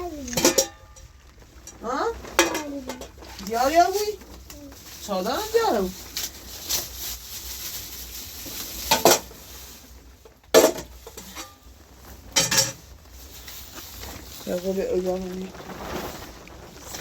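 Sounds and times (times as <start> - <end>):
utensil clanking against pot: 0.2 - 3.6, 10.2 - 11.6, 12.3 - 12.8.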